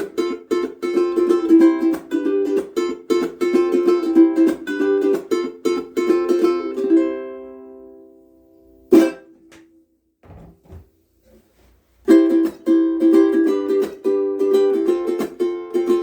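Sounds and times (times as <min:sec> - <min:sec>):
ukulele strumming: 0:00.0 - 0:09.8, 0:12.0 - 0:16.0
faint handling sounds: 0:09.4 - 0:12.1.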